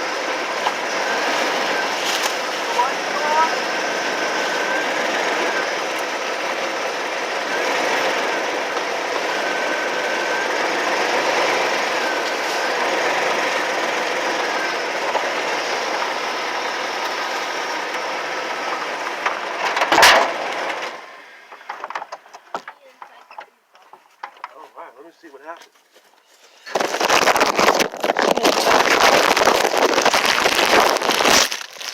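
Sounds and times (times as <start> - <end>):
machine rattling: 0.0 - 21.0.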